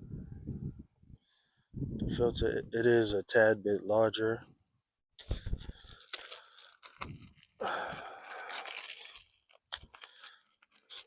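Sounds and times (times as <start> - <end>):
crinkling rustling: 5.2 - 11.0.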